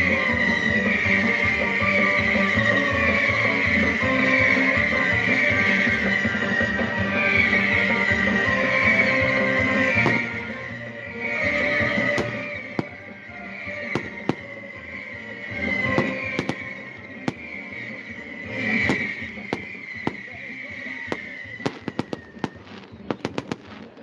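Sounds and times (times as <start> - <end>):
crackling fireworks: 0.0 - 24.0
fireworks bangs and pops: 5.0 - 10.7, 11.5 - 24.0.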